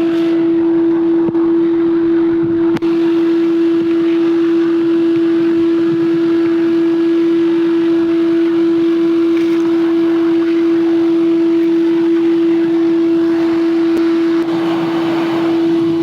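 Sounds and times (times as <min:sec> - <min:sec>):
machine hum: 0:00.0 - 0:16.0
hiss: 0:13.3 - 0:16.0.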